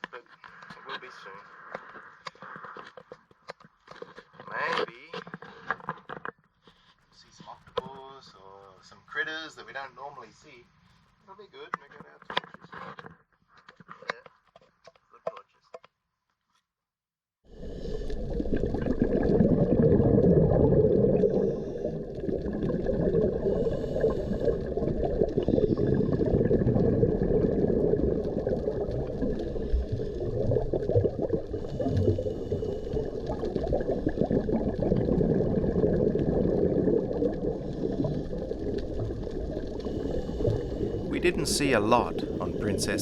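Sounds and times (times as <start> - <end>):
muffled underwater rush: 17.7 - 43.0.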